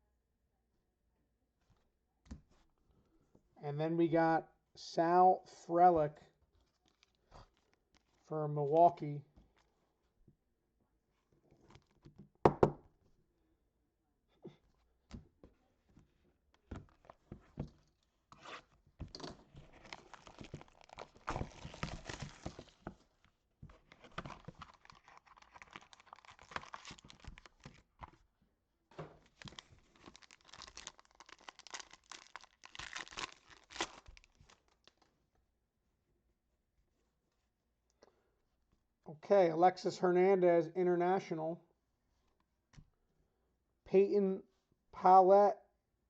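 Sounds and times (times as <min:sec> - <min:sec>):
card packaging tearing and crinkling: 0:19.6 - 0:22.9, 0:23.8 - 0:27.9, 0:29.2 - 0:35.1.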